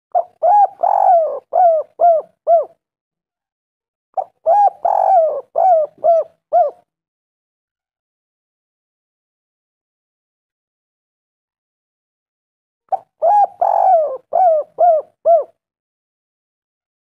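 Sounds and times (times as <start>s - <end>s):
dove cooing: 0.2s - 2.8s, 4.2s - 6.9s, 12.9s - 15.6s.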